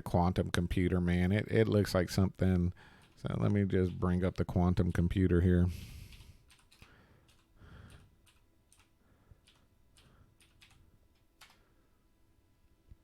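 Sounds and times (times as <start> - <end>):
computer keyboard typing: 2.9 - 5.3, 6.0 - 11.7.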